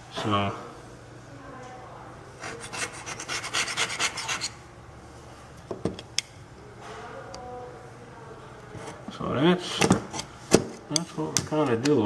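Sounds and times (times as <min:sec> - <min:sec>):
scraper rasping paint off wood: 0:02.4 - 0:04.6.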